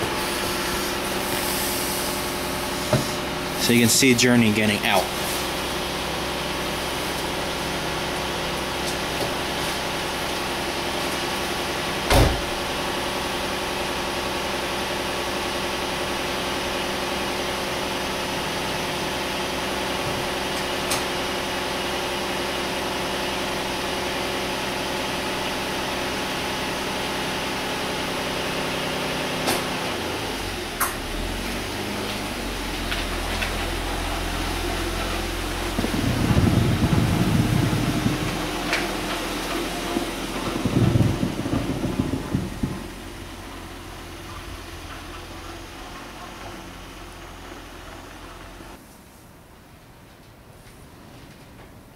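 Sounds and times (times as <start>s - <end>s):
car engine idling: 0.0s - 48.8s
loud thump: 12.1s - 12.6s, 40.4s - 43.7s.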